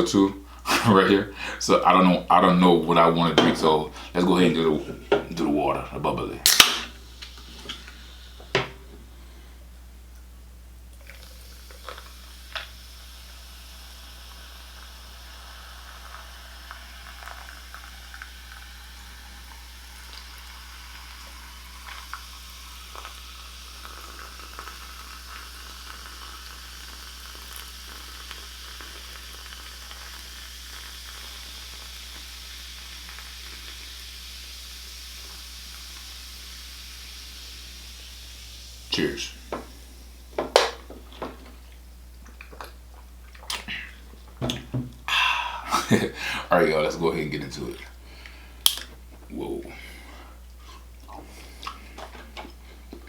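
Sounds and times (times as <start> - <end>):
sparkling water fizzing: 2.8 - 9.2, 11.0 - 41.8.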